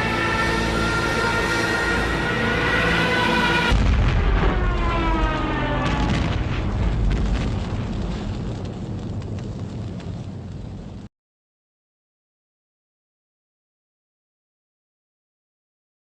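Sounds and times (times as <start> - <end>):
deep rumble of explosions: 3.7 - 11.1.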